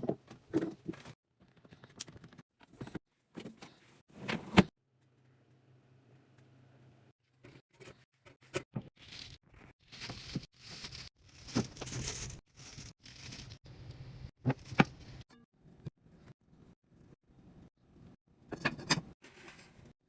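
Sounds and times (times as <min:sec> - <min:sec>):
packaging crinkling: 0:09.0 - 0:13.6.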